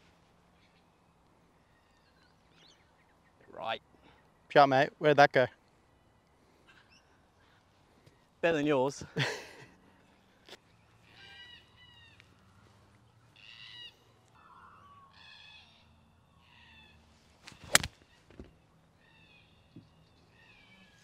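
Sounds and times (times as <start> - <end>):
bird calling falling cries: 11.0 - 12.6, 13.3 - 21.0.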